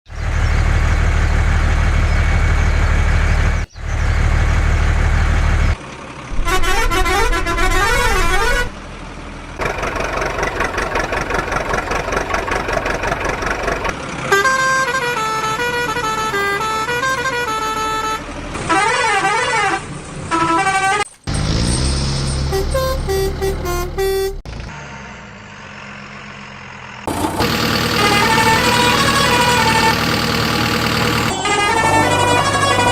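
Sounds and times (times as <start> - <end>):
engine rumble: 0.1 - 32.9
horn toots: 6.3 - 8.8, 13.8 - 24.5, 28.0 - 32.9
wailing sirens: 6.5 - 8.8, 27.4 - 32.9.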